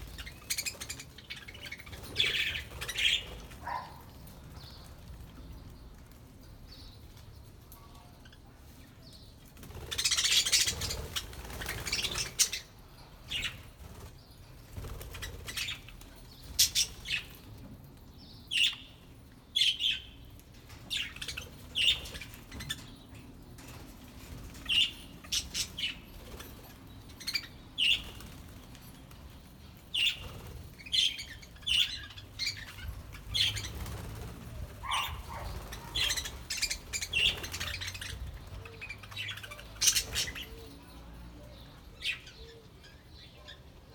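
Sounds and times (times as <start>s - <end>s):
birds flapping wings: 9.6s - 12.4s, 13.8s - 15.8s, 27.9s - 29.2s, 33.0s - 38.6s
budgerigars chirping: 34.8s - 38.2s.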